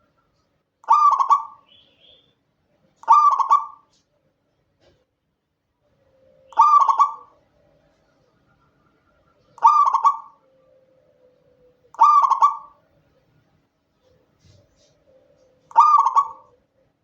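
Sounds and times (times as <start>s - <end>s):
dove cooing: 0.8s - 1.8s, 3.0s - 3.9s, 6.0s - 8.1s, 9.4s - 12.9s, 14.0s - 16.8s.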